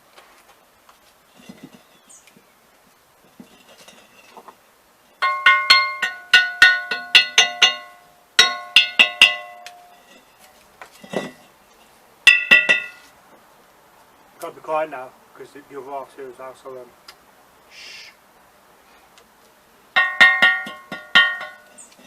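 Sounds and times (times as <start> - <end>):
hammer striking ringing iron: 5.2 - 10.0, 12.3 - 13.0, 20.0 - 21.7.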